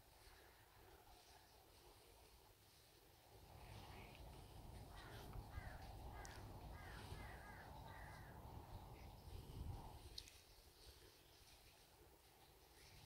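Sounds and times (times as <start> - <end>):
faint bird calls: 3.4 - 10.3.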